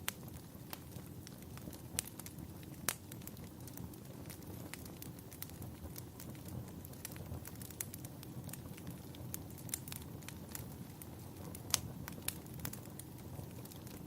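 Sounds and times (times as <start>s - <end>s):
low rumble of fire: 0.0s - 14.0s
wood fire crackling: 0.0s - 14.0s.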